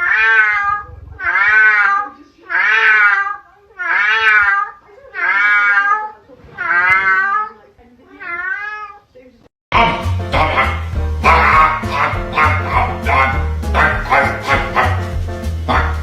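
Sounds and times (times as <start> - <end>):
cat meowing: 0.0 - 9.1.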